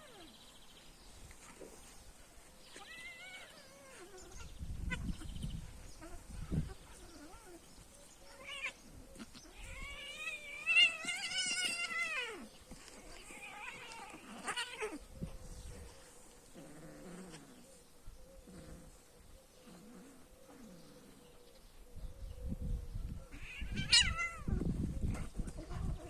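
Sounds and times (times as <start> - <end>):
cat yowling: 23.3 - 24.6.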